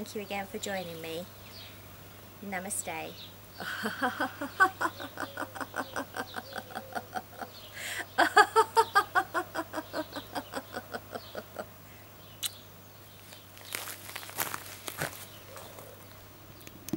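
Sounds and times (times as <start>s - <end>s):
woman laughing: 3.6s - 11.8s.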